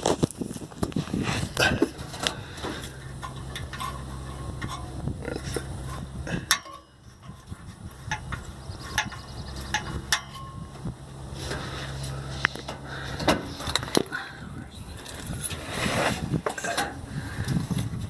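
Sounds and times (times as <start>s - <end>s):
sharp clicks and knocks: 1.6s - 10.9s.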